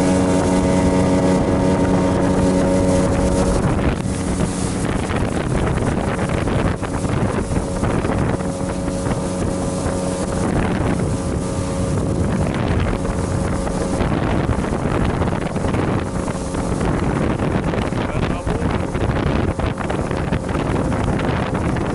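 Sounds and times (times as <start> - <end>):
boat engine running: 0.0 - 21.9
water rushing past: 0.0 - 21.9
wind buffeting microphone: 0.0 - 21.9.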